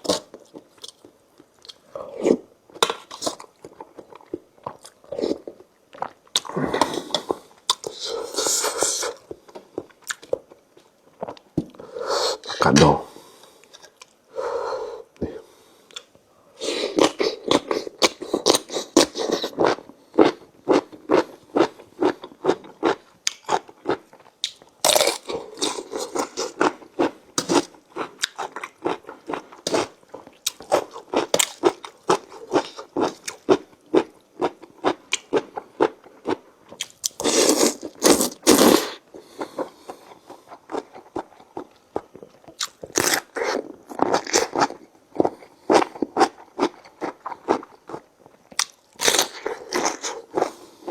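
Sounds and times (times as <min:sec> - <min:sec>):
chewing and crunching noodles: 0:16.7 - 0:50.9.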